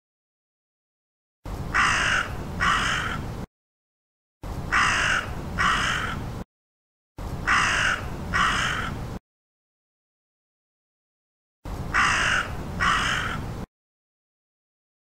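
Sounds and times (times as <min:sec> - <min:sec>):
crow cawing: 0:01.8 - 0:03.2, 0:04.7 - 0:06.2, 0:07.5 - 0:09.0, 0:11.9 - 0:13.4.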